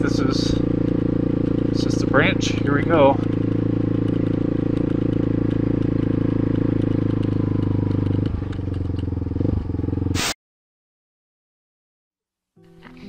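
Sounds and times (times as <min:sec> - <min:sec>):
motorcycle engine running: 0:00.0 - 0:10.3.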